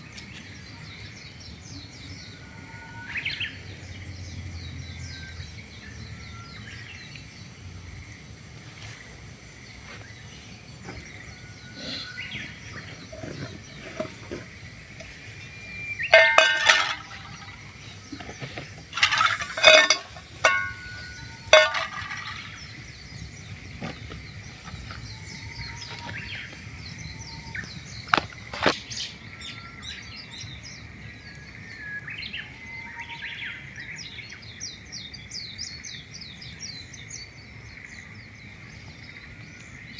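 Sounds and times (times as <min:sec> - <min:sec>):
songbirds chirping: 0:00.0 - 0:39.9
metallic clinks and knocks: 0:16.1 - 0:17.6, 0:18.2 - 0:22.5.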